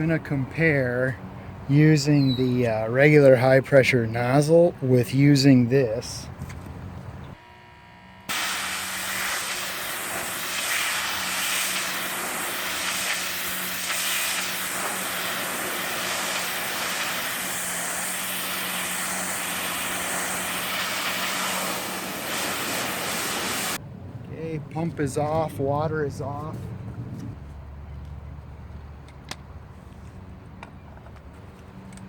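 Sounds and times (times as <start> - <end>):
pump hum: 7.3 - 23.8
pressure washer jet hissing: 8.3 - 23.8.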